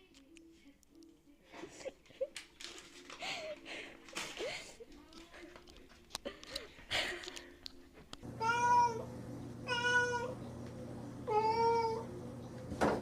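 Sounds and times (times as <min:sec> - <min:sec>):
faint clicks and rustles: 0:00.0 - 0:08.2
cat meowing: 0:08.4 - 0:10.4, 0:11.3 - 0:12.0.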